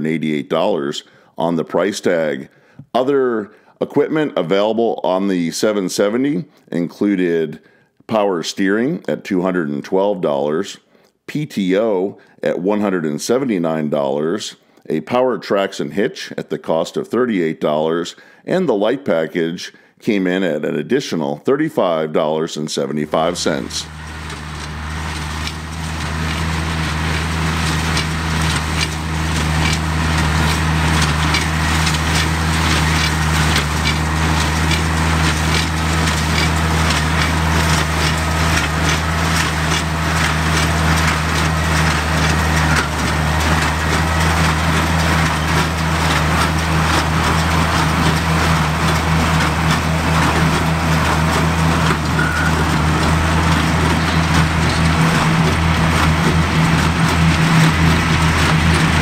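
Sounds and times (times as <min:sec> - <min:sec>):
tractor engine running under load: 0:23.0 - 0:59.0
baler plunger crunching and clicking: 0:23.2 - 0:59.0.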